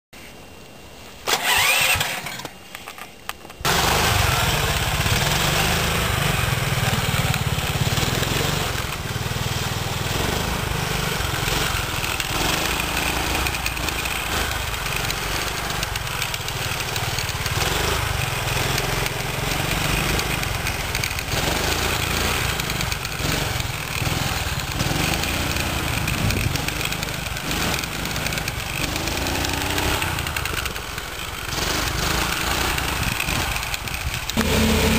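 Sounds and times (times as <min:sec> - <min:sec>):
engine cranking and running: 0:01.2 - 0:34.9.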